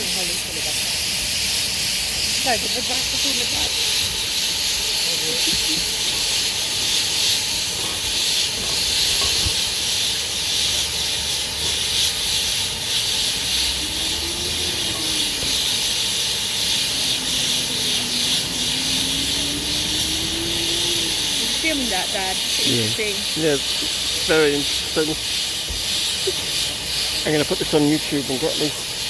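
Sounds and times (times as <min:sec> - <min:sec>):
steam hissing from locomotive: 0:00.0 - 0:29.0.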